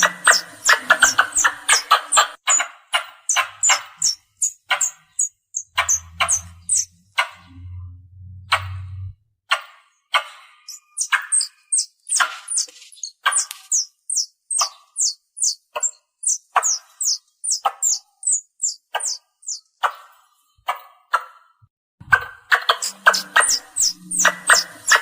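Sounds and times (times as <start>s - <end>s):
squirrel chirping: 0.0s - 7.5s, 10.1s - 20.1s, 22.5s - 25.0s.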